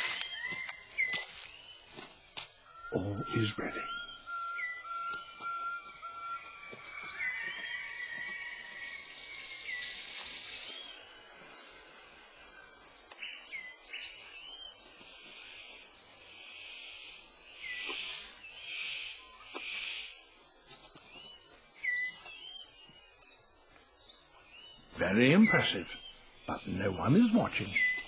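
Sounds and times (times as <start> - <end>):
whistled bird calls: 0.0 - 1.9, 2.5 - 14.8, 21.1 - 23.4, 24.1 - 28.0
insect hiss: 0.0 - 28.0.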